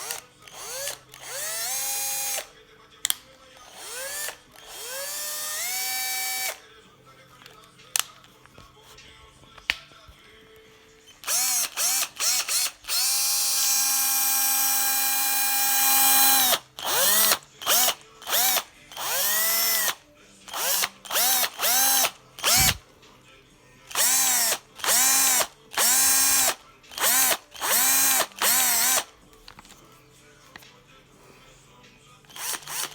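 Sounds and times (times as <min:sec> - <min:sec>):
drill motor whining: 0:00.0 - 0:02.5, 0:03.7 - 0:06.6, 0:11.2 - 0:22.8, 0:23.9 - 0:29.1, 0:32.3 - 0:32.9.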